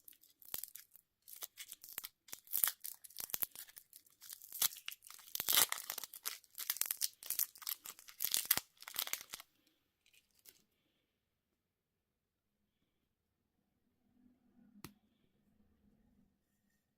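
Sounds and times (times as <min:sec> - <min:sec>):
candy wrapper crinkling: 0:00.0 - 0:10.6.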